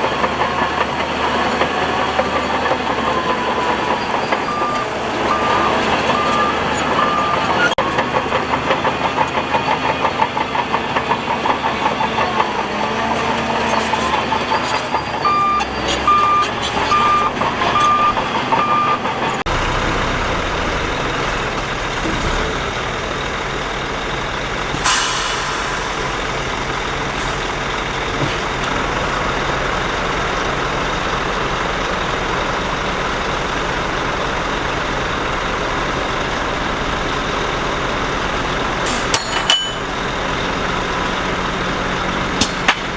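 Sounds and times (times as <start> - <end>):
heavy machinery engine rumble: 0.0 - 42.9
reversing alarm beeping: 2.1 - 8.0, 14.1 - 21.4.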